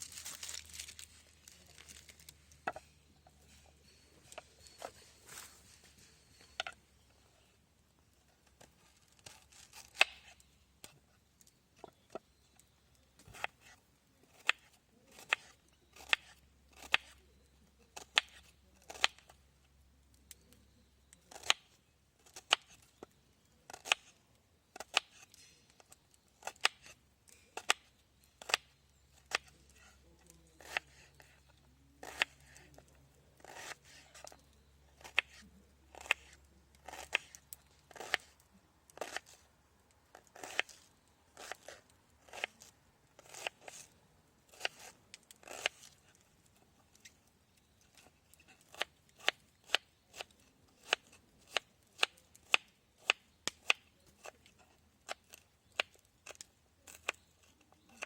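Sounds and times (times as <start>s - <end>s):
knife making sharp cuts: 30.6s - 31.0s, 33.4s - 34.3s, 39.0s - 39.4s, 40.4s - 40.8s.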